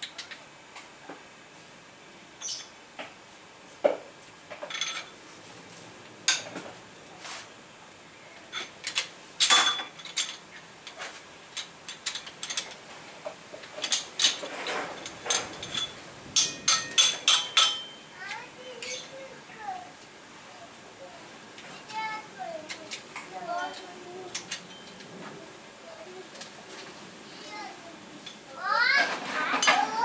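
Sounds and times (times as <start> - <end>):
hand tools clicking on metal: 8.5 - 12.8, 13.5 - 19.1, 22.6 - 25.1.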